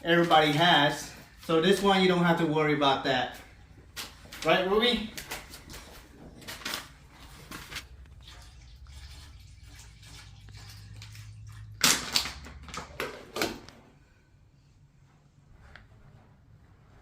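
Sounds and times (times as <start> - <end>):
water splashing and sloshing: 5.2 - 13.7.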